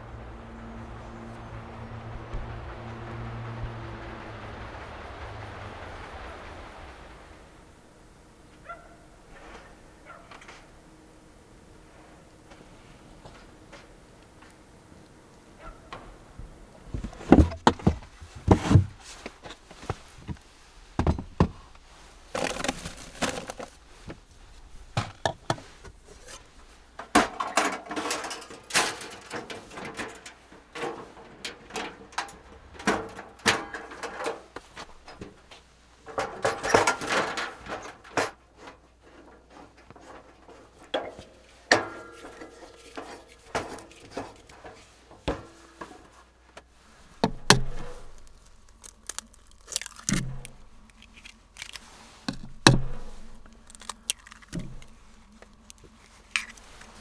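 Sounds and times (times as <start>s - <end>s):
rustling: 15.6s - 31.3s, 33.7s - 57.0s.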